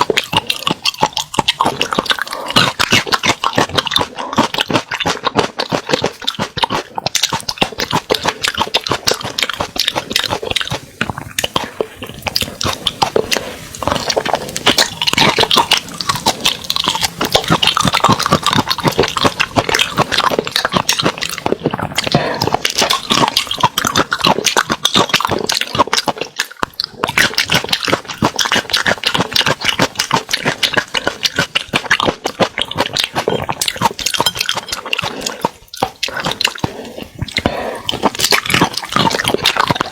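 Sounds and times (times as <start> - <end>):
wet chewing and slurping: 0.0 - 39.9.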